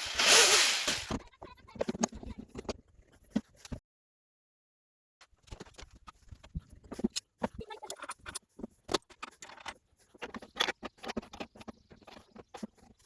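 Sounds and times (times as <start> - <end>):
small metal parts clicking and clinking: 0.0 - 1.2.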